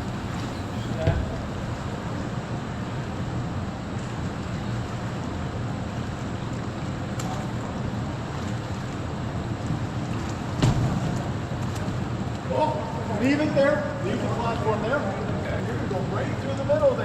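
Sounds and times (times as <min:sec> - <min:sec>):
loud bump: 0:00.0 - 0:02.5
wind rumbling on microphone: 0:00.0 - 0:02.8
faint water wash: 0:00.0 - 0:04.5.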